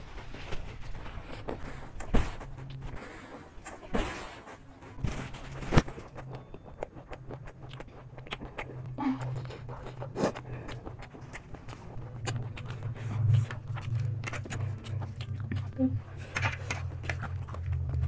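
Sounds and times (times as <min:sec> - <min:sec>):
faint low hum: 0:00.0 - 0:18.0
chewing crunchy snacks: 0:00.2 - 0:18.0
mouth clicks and smacks: 0:05.6 - 0:18.0.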